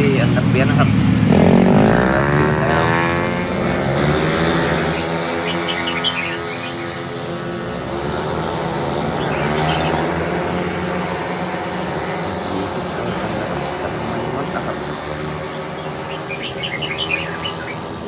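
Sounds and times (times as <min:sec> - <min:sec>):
racing engines revving: 0:00.0 - 0:18.0
bird chirps: 0:03.6 - 0:07.4, 0:09.1 - 0:10.7, 0:12.5 - 0:18.0.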